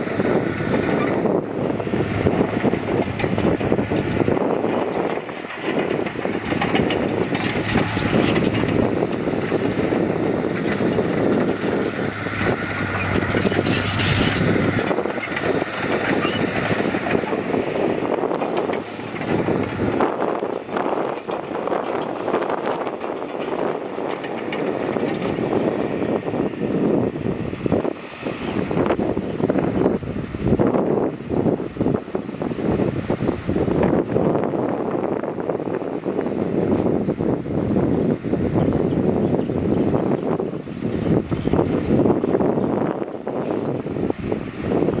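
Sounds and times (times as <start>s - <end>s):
heavy diesel machinery engine: 0.0s - 38.8s
clattering and rattling: 2.0s - 25.9s.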